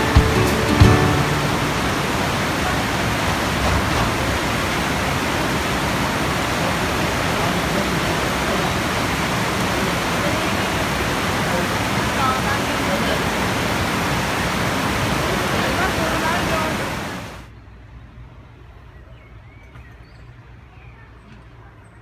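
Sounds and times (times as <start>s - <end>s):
waterfall and stream rushing: 0.0s - 17.5s.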